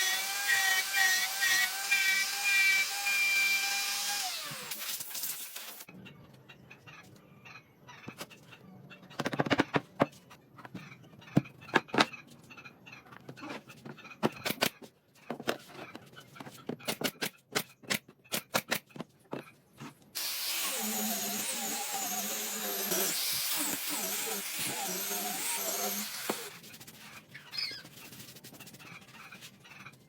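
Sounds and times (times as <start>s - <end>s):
power tool running: 20.2s - 26.5s.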